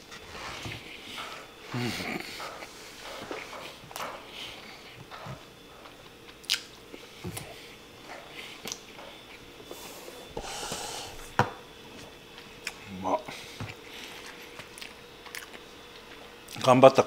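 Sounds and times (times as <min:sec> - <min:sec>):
person chewing food: 0:00.1 - 0:09.8, 0:12.4 - 0:12.8, 0:13.4 - 0:16.7
sharp mouth clicks: 0:08.6 - 0:08.8.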